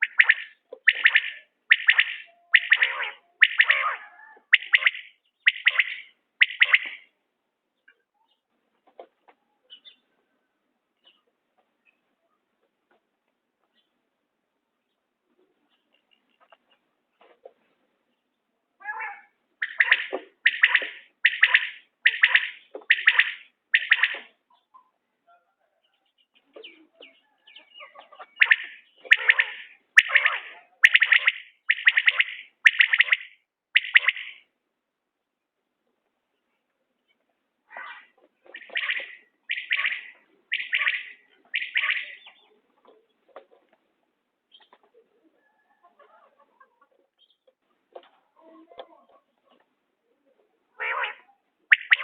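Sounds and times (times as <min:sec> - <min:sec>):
quail calling: 0:00.0 - 0:07.1, 0:18.8 - 0:25.0, 0:26.6 - 0:34.5, 0:37.7 - 0:43.5, 0:50.8 - 0:52.0.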